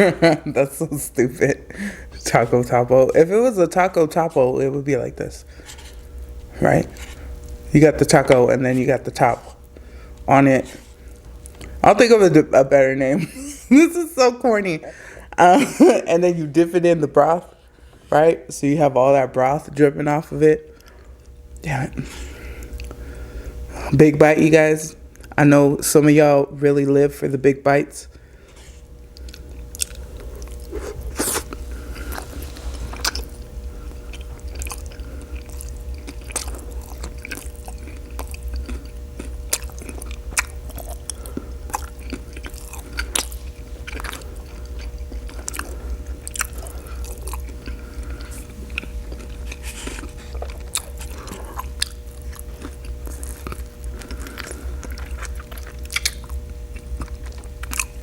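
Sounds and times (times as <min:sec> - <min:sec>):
food crunching: 0:05.4 - 0:12.2, 0:20.7 - 0:23.2, 0:28.1 - 0:58.0
chewing and mouth smacking: 0:11.1 - 0:11.8, 0:22.6 - 0:23.0, 0:29.1 - 0:58.0.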